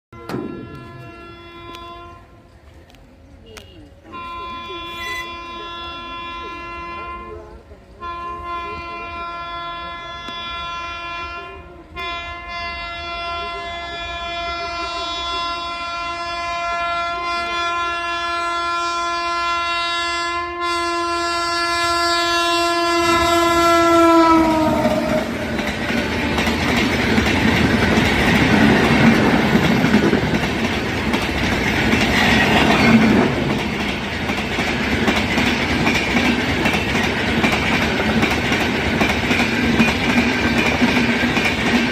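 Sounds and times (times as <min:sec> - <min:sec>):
locomotive horn blast: 0:00.1 - 0:02.6, 0:03.4 - 0:30.9
train coaches rumbling past: 0:00.2 - 0:41.9.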